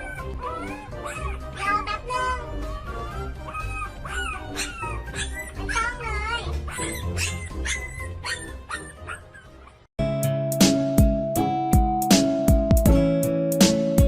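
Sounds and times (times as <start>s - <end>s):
pet whining cries: 0.0s - 9.9s
background music: 0.0s - 14.0s.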